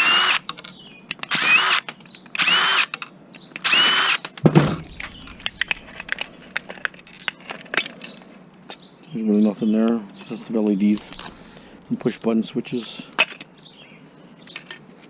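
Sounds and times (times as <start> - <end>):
cordless drill whining: 0.0 - 0.4, 1.3 - 1.8, 2.4 - 2.9, 3.6 - 4.2
small clicks of parts handled: 0.4 - 4.4, 14.5 - 14.9
thump: 4.4 - 5.6.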